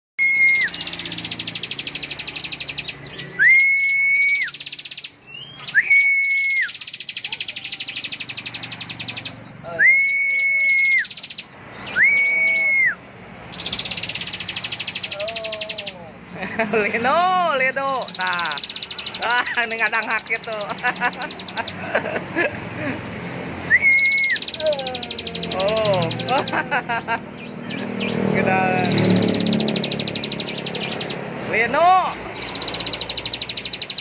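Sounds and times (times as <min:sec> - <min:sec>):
bird whistled notes: 0:00.2 - 0:16.0, 0:23.6 - 0:26.2
bird buzzy fast trills: 0:17.6 - 0:34.0.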